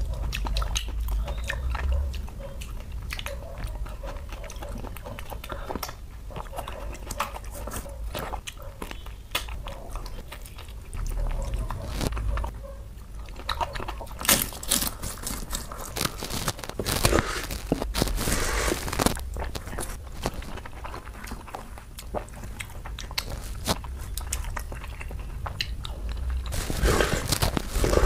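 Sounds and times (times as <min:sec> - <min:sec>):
close chewing and biting: 0:00.0 - 0:28.0
crisp crackly crunches: 0:07.1 - 0:12.5, 0:13.3 - 0:28.0
fingers squishing rice: 0:13.5 - 0:28.0.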